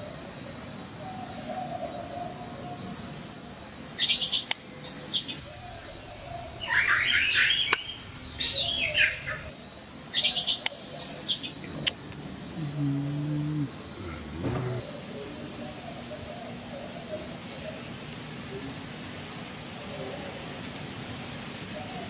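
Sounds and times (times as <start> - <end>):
bird singing chirpy phrases: 4.0 - 11.9.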